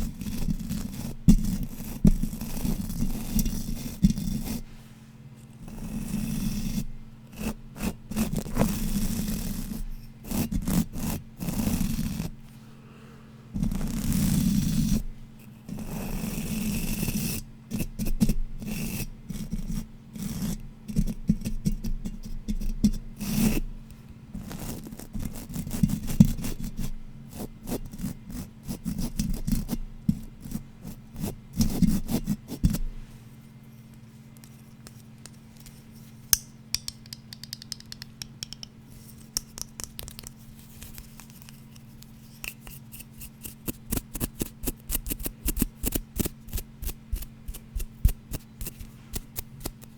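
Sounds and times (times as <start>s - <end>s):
tapping and scratching on object: 0.0s - 4.6s, 19.3s - 23.4s, 31.2s - 32.9s, 34.4s - 49.9s.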